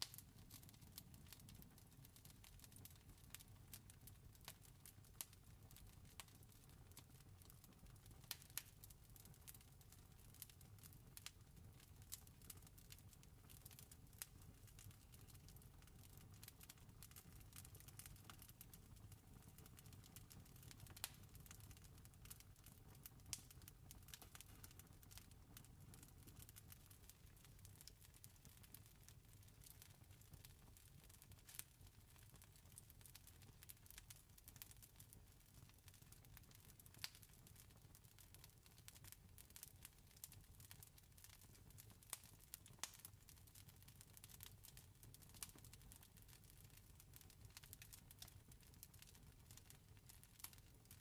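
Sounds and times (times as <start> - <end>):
sharp fire snaps: 0.0 - 1.4, 8.2 - 8.8, 13.4 - 25.2, 29.4 - 32.4, 38.2 - 43.3, 49.6 - 50.6
wood fire crackling: 0.0 - 51.0.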